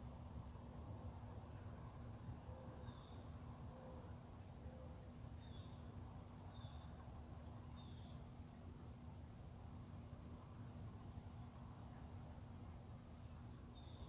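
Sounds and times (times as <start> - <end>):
low background hum: 0.0 - 14.0
faint bird chirps: 1.2 - 8.2, 13.1 - 14.0.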